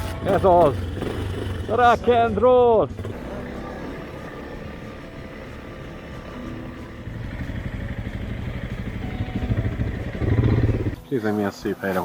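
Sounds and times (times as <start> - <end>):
motorcycle engine under throttle: 0.3 - 1.9, 3.0 - 11.0.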